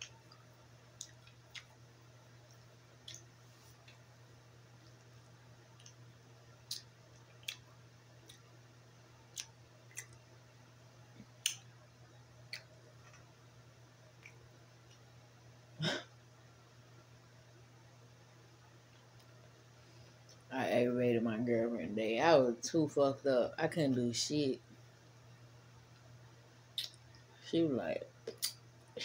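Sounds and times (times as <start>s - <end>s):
mouth chewing clicks and smacks: 1.0s - 1.8s, 2.5s - 4.0s, 6.6s - 8.4s, 9.3s - 10.2s, 12.4s - 13.3s, 26.7s - 27.1s, 28.2s - 28.6s.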